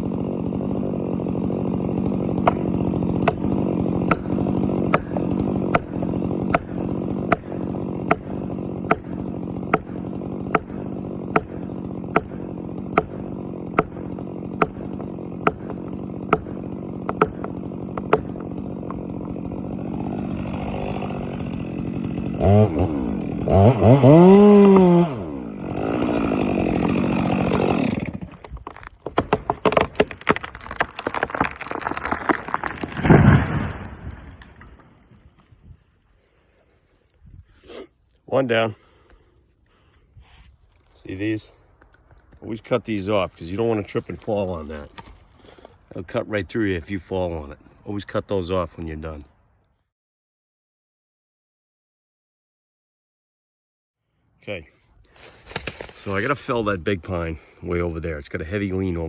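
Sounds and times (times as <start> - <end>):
chainsaw running: 0.0 - 35.5, 55.1 - 57.9
tree cracking and falling: 0.0 - 35.8, 43.8 - 45.8, 55.1 - 57.0.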